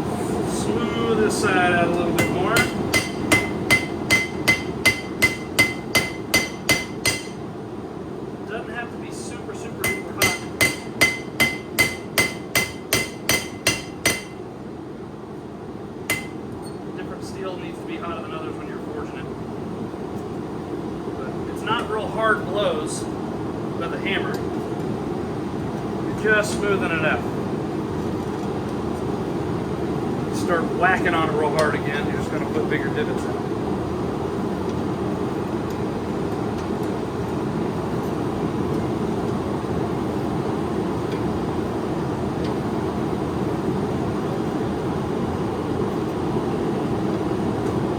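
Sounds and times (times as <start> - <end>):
hammer striking blade on anvil: 2.2 - 7.4, 9.8 - 14.4, 16.1 - 16.4.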